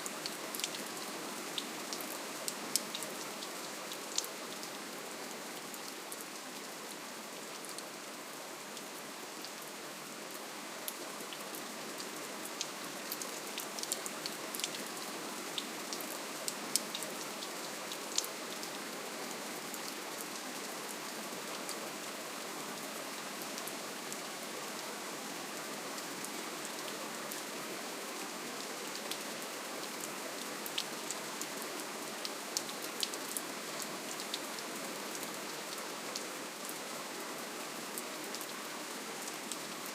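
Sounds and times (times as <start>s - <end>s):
raindrops ticking on a surface: 0.2s - 4.8s, 10.3s - 18.8s, 28.8s - 36.8s.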